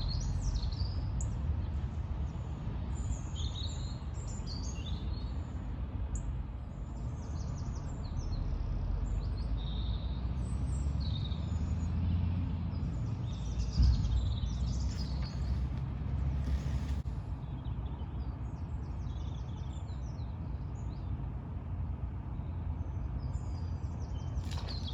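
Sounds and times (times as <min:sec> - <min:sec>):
small birds chirping: 0:07.0 - 0:21.2, 0:22.4 - 0:24.9.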